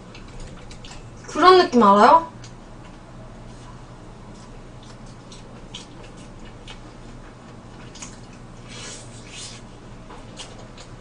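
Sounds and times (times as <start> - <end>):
chewing mouth sounds: 0.1 - 1.2, 4.4 - 11.0.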